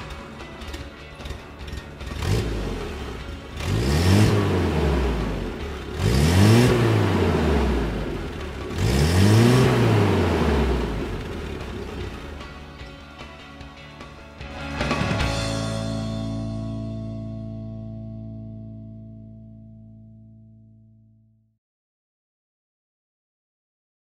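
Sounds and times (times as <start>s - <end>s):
engine throttle blips: 0.0s - 13.0s
car engine idling: 0.0s - 15.0s.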